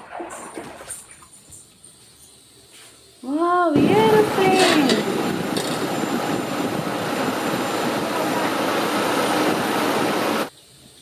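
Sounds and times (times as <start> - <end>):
airplane engine rushing: 3.6 - 10.5.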